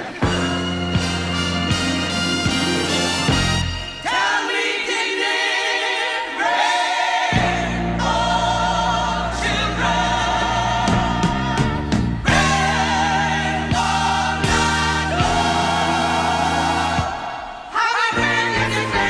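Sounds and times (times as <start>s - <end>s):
orchestra: 0.0s - 5.0s
group of singers harmonising: 0.0s - 19.0s.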